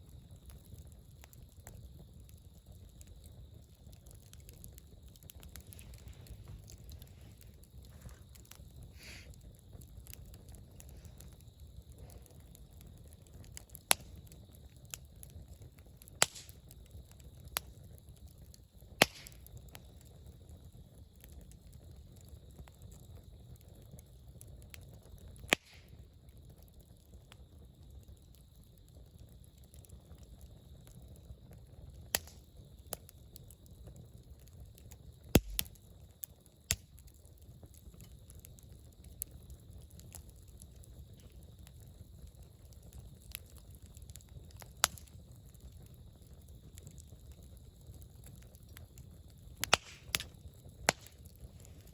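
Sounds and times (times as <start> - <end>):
campfire crackling: 0.0 - 51.9
sharp loud pops: 19.0 - 19.4, 35.4 - 35.7, 49.6 - 50.3.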